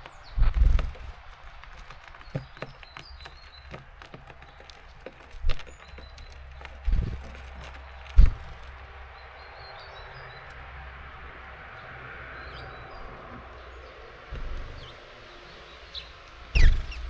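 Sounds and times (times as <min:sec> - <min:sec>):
songbirds chirping: 0:00.0 - 0:17.0
short low thump: 0:08.2 - 0:08.6.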